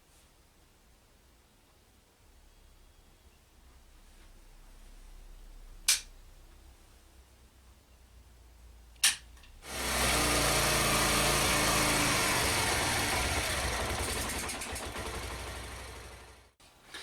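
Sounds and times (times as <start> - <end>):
sharp click: 5.9 - 6.1, 9.0 - 9.6
motorcycle engine running: 9.6 - 16.6.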